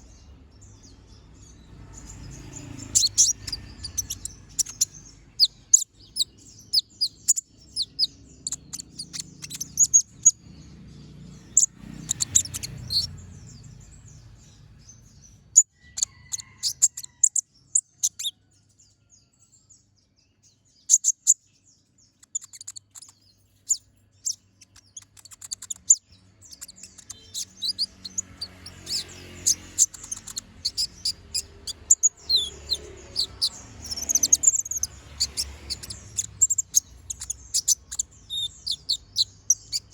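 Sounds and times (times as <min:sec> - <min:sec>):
sunbird chirps and trills: 0:00.0 - 0:39.9.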